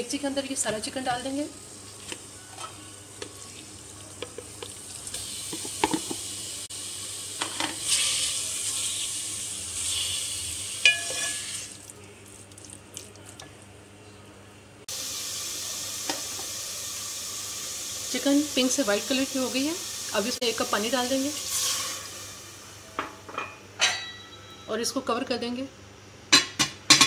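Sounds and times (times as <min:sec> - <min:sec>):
chicken sizzling in pot: 0:00.1 - 0:13.2, 0:14.9 - 0:23.0.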